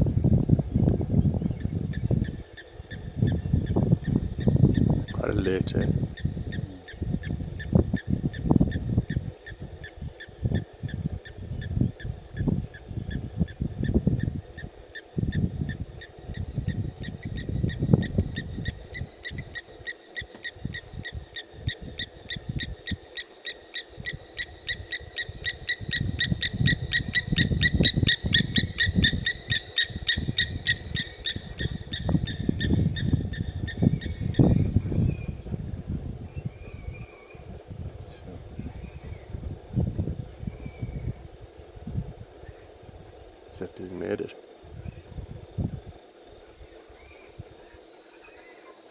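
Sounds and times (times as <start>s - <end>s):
high rapid animal call: 6.0s - 34.5s.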